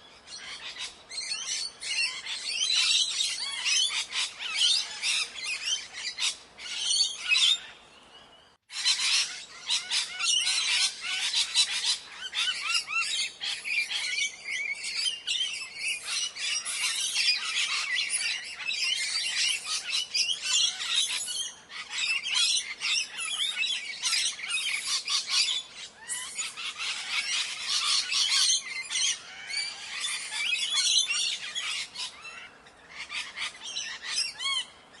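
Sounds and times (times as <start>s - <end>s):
parrots squawking: 20.6s - 34.7s.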